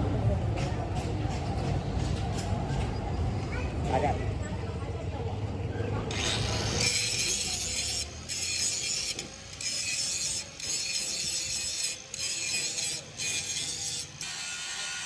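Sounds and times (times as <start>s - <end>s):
harsh rasping of workshop tool: 6.1s - 15.0s.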